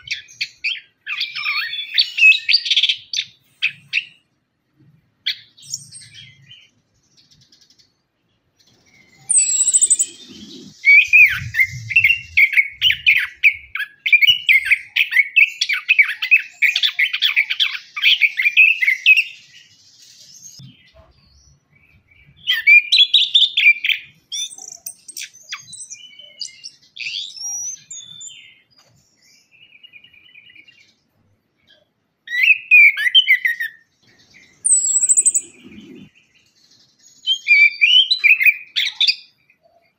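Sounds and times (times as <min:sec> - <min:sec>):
thrush singing: 0:09.2 - 0:13.7.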